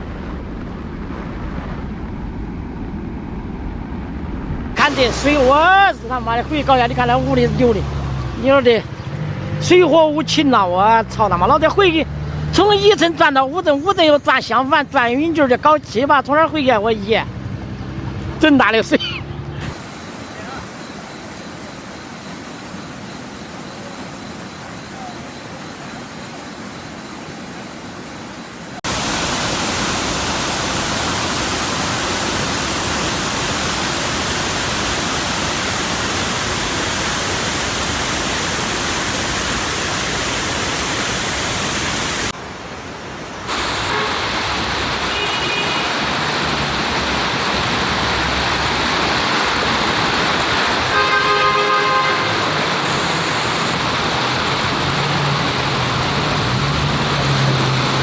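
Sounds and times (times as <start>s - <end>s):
floodwater rushing: 0.0s - 58.0s
vehicle horn: 43.7s - 44.4s, 45.0s - 46.0s, 50.8s - 52.8s.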